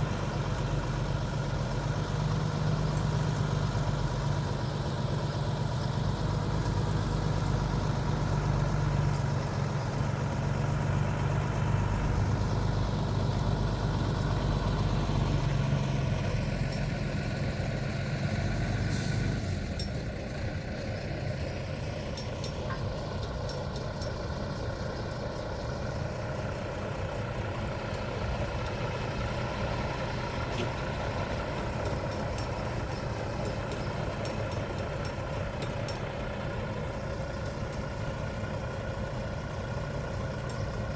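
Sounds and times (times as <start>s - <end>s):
lorry engine running: 0.0s - 40.9s.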